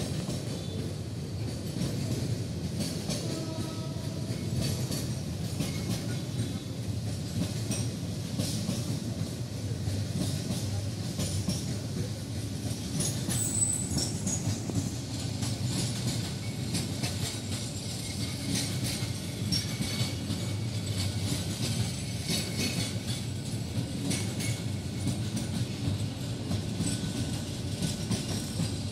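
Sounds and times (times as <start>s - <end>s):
train wheels rumbling on rail: 0.0s - 28.9s
wheels clicking over rail joints: 0.0s - 28.9s
high wheel squeal: 13.3s - 14.6s.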